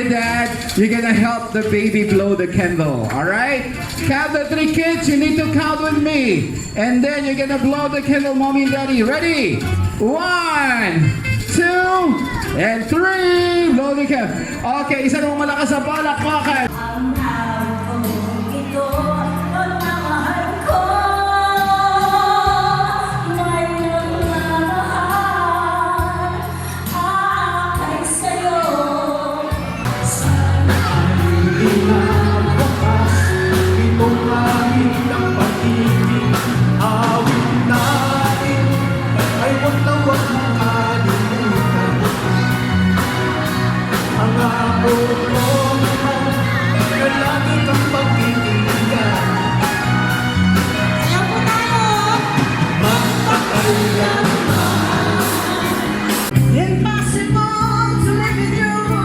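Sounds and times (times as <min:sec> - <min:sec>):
person singing with band: 0:16.7 - 0:59.0
steady drum beat: 0:29.9 - 0:56.6.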